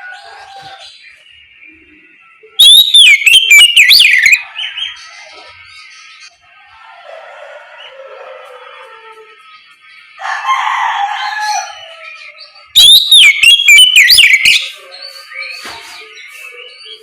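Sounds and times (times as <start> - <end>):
bird singing: 0.0 - 17.0.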